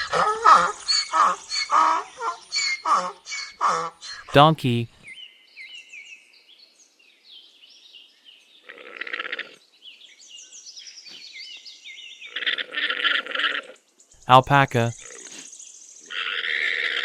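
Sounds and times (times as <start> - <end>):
donkey braying: 0.0 - 3.9.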